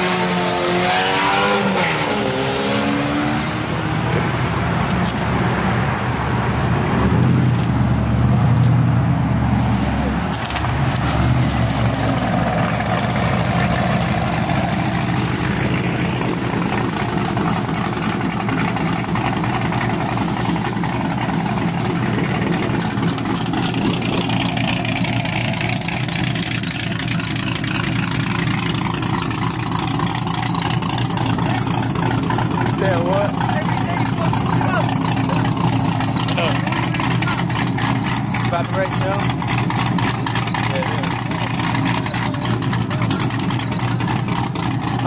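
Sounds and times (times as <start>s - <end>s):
car engines idling: 0.0s - 45.0s.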